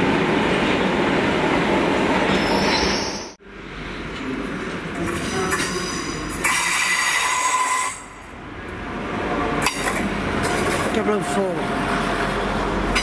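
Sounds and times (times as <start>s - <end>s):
train rolling: 0.0s - 13.0s
train brakes squealing: 2.3s - 3.4s, 5.3s - 8.2s.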